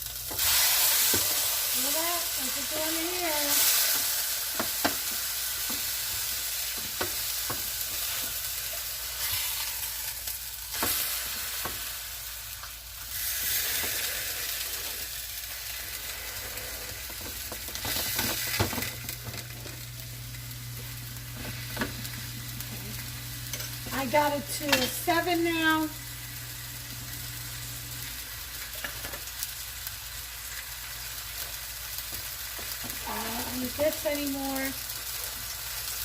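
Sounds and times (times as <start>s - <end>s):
meat sizzling in a pan: 0.0s - 36.0s
low steady hum: 18.4s - 28.8s.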